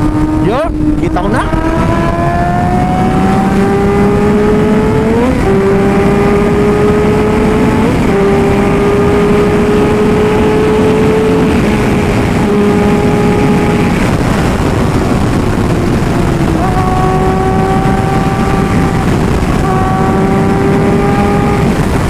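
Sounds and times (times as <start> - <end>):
gear changes: 0.0 - 22.0
motorcycle engine at speed: 0.0 - 22.0
wind rush over microphone: 0.0 - 22.0.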